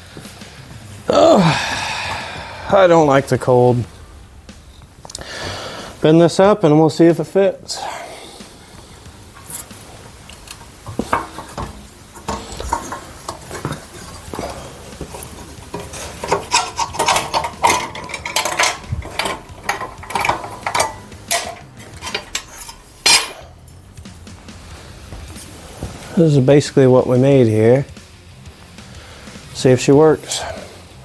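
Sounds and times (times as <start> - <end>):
sharp metal clank: 0.1 - 28.0
light metal clinking and clattering: 7.7 - 26.2.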